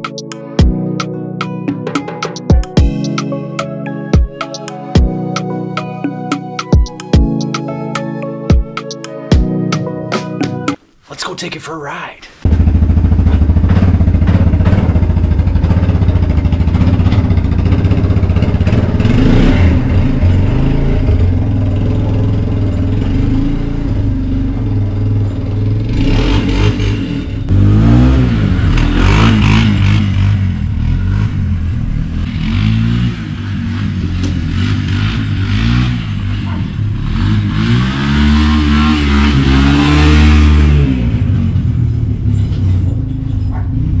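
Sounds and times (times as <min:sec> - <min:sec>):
atv engine revving: 0:12.4 - 0:44.0.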